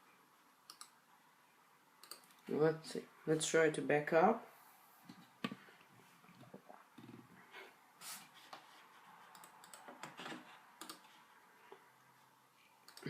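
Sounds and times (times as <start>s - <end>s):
computer mouse and key clicks: 0.6s - 1.0s, 2.0s - 2.4s, 9.3s - 11.2s.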